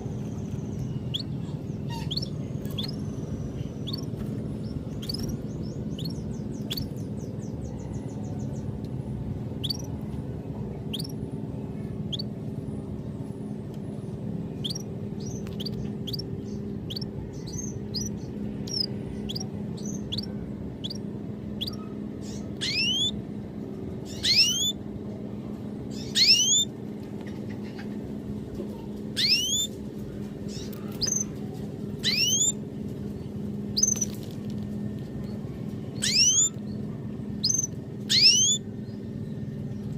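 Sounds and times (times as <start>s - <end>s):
birds chirping: 0.0s - 39.9s
steady low hum: 0.0s - 39.9s.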